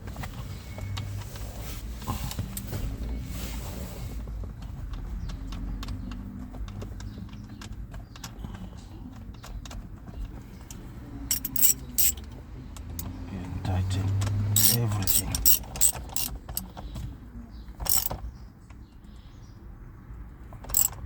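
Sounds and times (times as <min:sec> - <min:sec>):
hand tools clicking and knocking: 0:11.3 - 0:13.1, 0:14.5 - 0:16.6, 0:17.9 - 0:18.1, 0:20.7 - 0:21.0.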